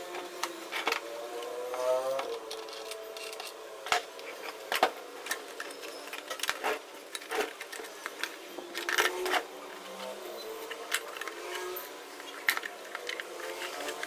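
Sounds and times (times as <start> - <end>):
tools and parts clicking: 0.1 - 14.0.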